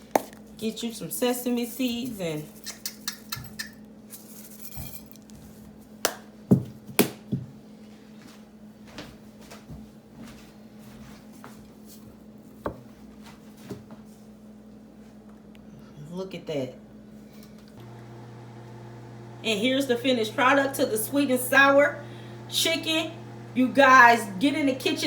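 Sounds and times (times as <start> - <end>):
low steady hum: 17.8 - 25.0.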